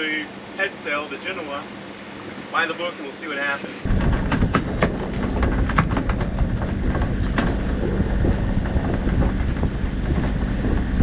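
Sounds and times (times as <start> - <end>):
boat motor humming: 0.0 - 11.0
wind buffeting microphone: 3.8 - 11.0
rigging clicks and knocks: 3.9 - 11.0.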